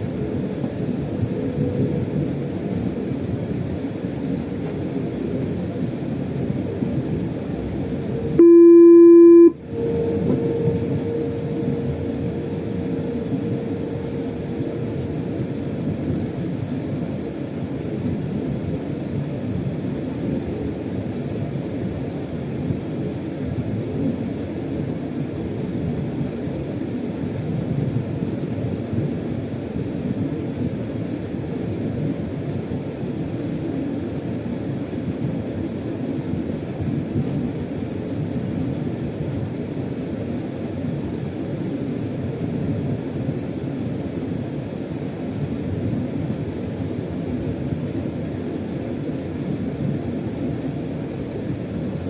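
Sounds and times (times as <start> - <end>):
train rumble: 0.0 - 52.0
loud single-pitched tone: 8.3 - 15.2.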